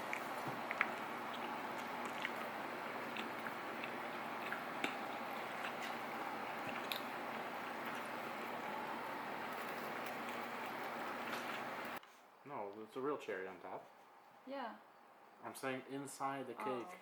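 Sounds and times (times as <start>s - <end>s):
soft chewing: 0.0s - 12.1s
background hiss: 11.7s - 17.0s.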